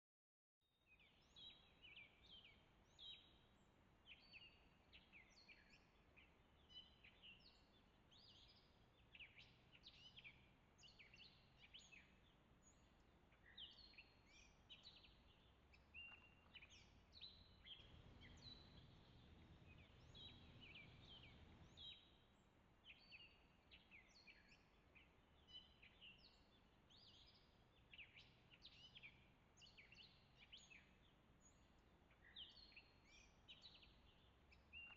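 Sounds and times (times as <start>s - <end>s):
songbirds chirping: 0.6s - 34.9s.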